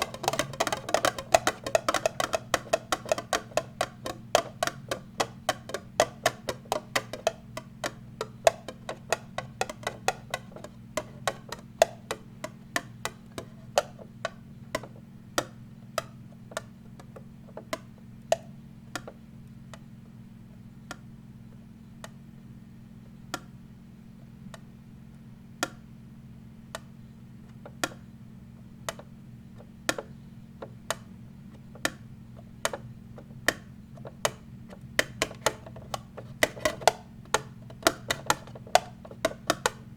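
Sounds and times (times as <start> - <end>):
tapping on a hard object: 0.0 - 19.2, 28.9 - 31.1, 31.8 - 39.9
steady low hum: 0.0 - 39.9.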